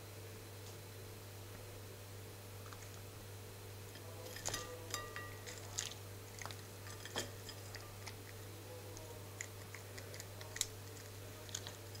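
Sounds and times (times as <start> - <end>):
steady low hum: 0.0 - 12.0
cat chewing with mouth clicks: 5.2 - 12.0.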